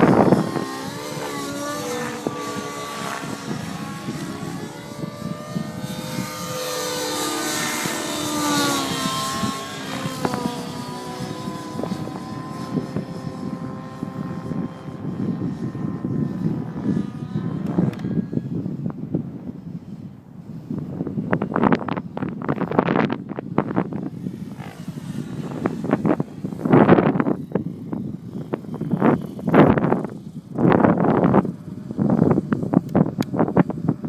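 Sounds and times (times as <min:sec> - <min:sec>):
model helicopter engine and rotor: 0:00.0 - 0:34.0
wind buffeting microphone: 0:00.0 - 0:34.0.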